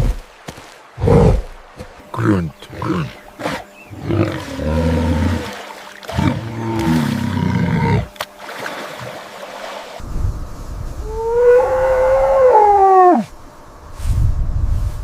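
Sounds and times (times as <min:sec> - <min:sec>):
big cat roaring: 0:01.0 - 0:08.1.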